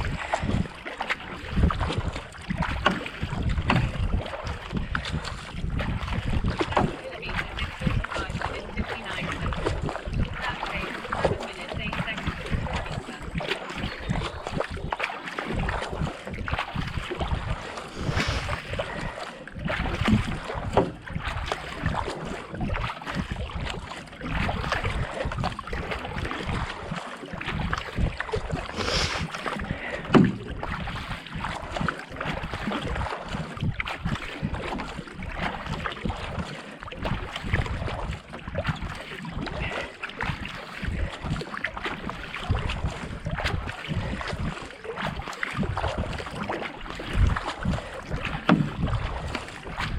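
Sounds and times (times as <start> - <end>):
wind buffeting microphone: 0.0 - 36.4, 37.0 - 44.6, 45.6 - 49.9
paddle splashing and dripping: 0.0 - 49.9.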